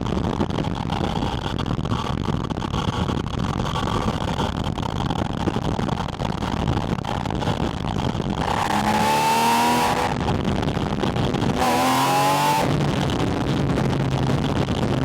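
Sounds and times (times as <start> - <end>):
car engine revving: 8.3 - 14.8.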